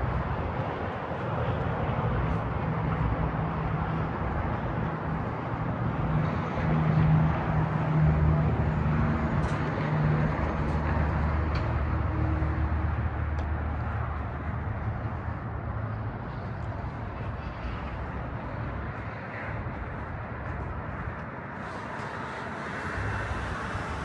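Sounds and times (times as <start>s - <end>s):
diesel truck engine droning: 3.8s - 18.8s.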